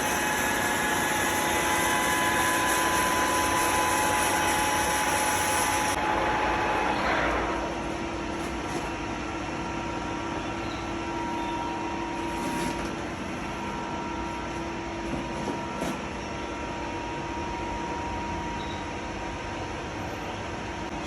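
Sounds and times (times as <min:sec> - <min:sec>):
metal lathe running: 0:00.0 - 0:15.0.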